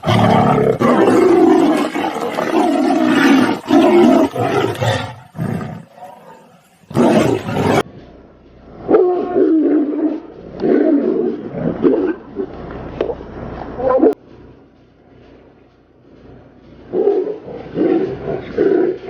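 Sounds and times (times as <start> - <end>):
tiger growl: 0.0 - 7.9, 8.8 - 13.1, 16.9 - 19.0
tigers roaring: 0.0 - 7.9, 8.8 - 12.5.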